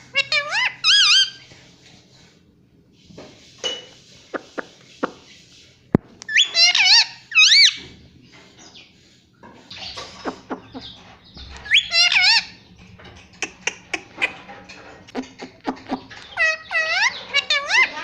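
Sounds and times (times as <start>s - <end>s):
parrot squawking: 0.0s - 1.4s, 6.3s - 7.8s, 9.8s - 12.6s, 13.4s - 14.5s, 15.1s - 18.0s.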